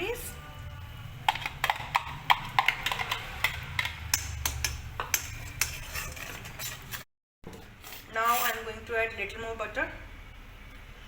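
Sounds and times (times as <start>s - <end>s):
metal spoon scraping a pan: 1.3s - 7.1s, 7.8s - 8.7s.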